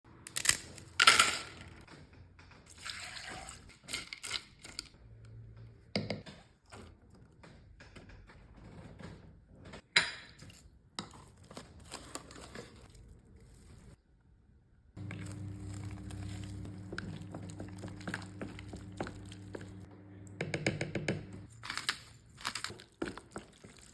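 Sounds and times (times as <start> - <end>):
utensils and containers clinking: 0.3 - 1.9, 2.7 - 5.0, 21.4 - 23.9
liquid pouring and splashing: 2.7 - 4.6, 21.8 - 23.9.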